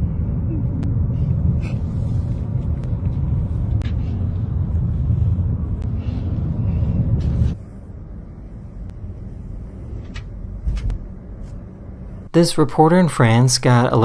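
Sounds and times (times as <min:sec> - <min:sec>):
car driving rumble: 0:00.0 - 0:12.3.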